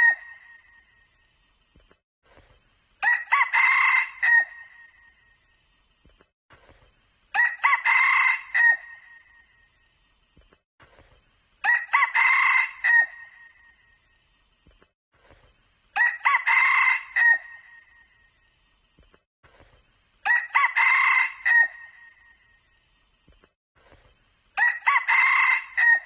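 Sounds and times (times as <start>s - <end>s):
rooster crowing: 3.0s - 4.7s, 7.4s - 9.0s, 11.6s - 13.3s, 16.0s - 17.6s, 20.3s - 22.1s, 24.6s - 26.0s.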